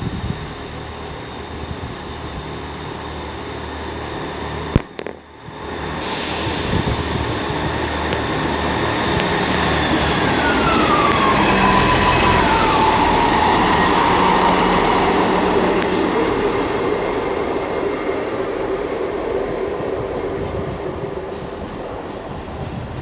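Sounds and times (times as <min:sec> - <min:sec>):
diesel train engine throb: 0:00.0 - 0:23.0
whine falling in pitch: 0:06.3 - 0:18.6.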